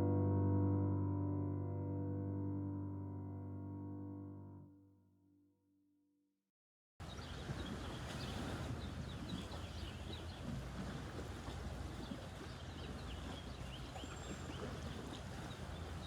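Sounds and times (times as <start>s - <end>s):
small birds chirping: 7.0s - 16.0s.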